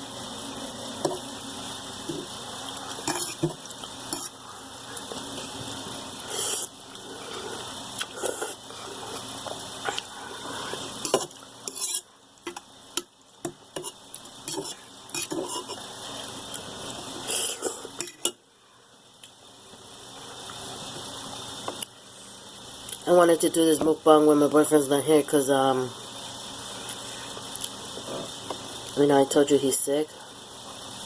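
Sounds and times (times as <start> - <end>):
slurping and chewing noodles: 6.2 - 11.1.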